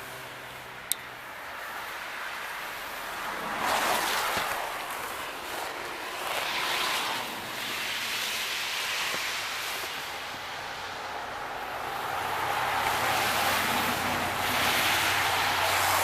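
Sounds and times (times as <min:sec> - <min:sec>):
snow brush sweeping snow: 0:03.7 - 0:10.3.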